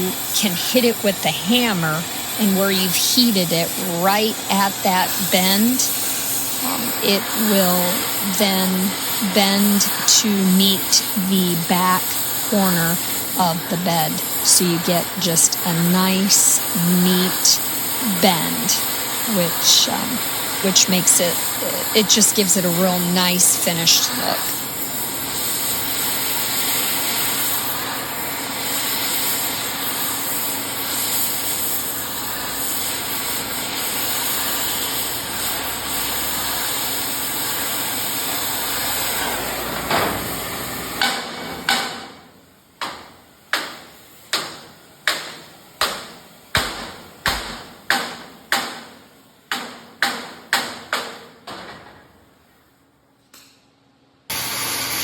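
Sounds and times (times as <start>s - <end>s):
torch roaring: 0.0s - 40.9s.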